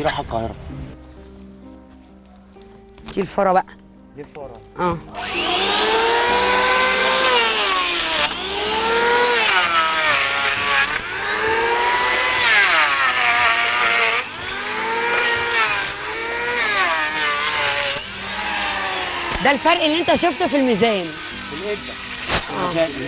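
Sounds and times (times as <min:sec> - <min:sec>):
electric hand planer on wood: 0:05.2 - 0:23.0.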